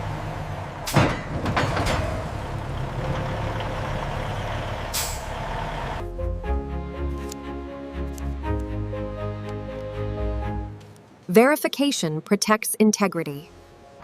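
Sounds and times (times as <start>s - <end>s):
truck engine rumbling: 0.0s - 7.3s
air brake hisses: 4.9s - 5.4s.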